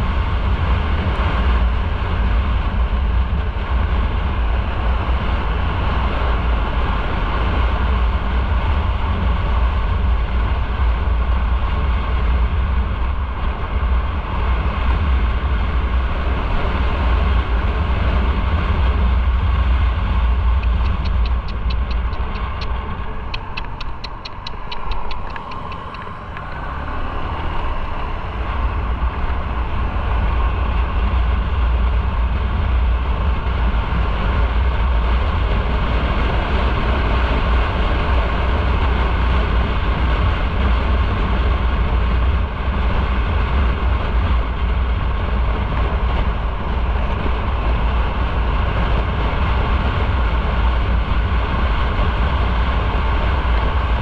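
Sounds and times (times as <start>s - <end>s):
motorcycle engine rumbling: 8.0s - 35.6s
quick light ticking: 20.6s - 26.5s.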